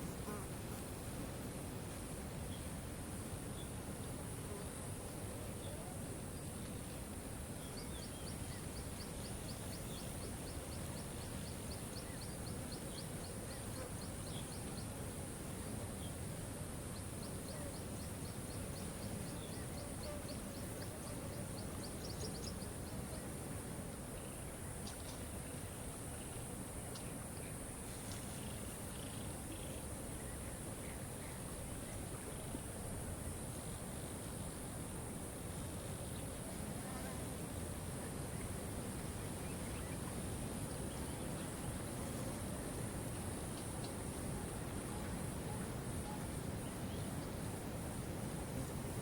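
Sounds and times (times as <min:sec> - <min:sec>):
faint chirps: 0:03.5 - 0:34.8.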